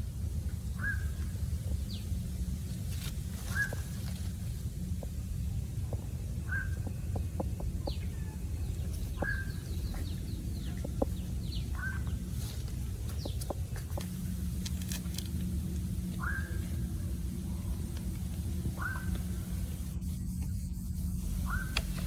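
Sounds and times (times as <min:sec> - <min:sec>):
steady low rumble: 0:00.0 - 0:22.0
chickens clucking: 0:03.4 - 0:19.9
high bird chirps: 0:05.9 - 0:14.7, 0:16.0 - 0:19.9.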